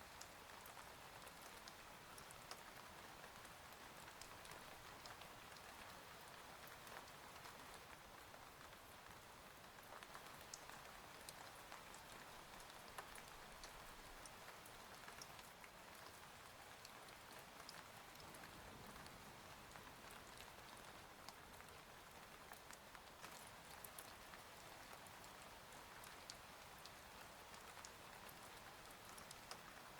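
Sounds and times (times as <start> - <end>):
soft rain: 0.0 - 29.9.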